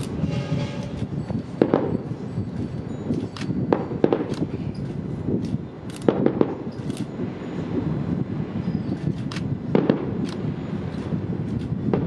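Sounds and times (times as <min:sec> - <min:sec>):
firework bangs: 0:01.5 - 0:02.0, 0:03.7 - 0:04.4, 0:06.0 - 0:06.7, 0:09.7 - 0:10.5.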